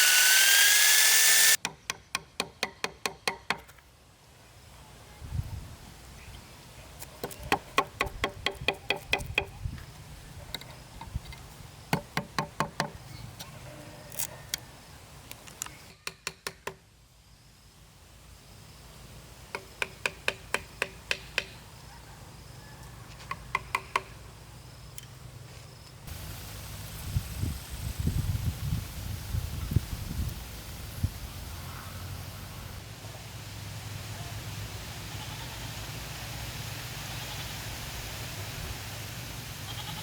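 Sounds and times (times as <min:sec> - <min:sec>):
rapid knocking on hollow bamboo: 0:07.4 - 0:09.6.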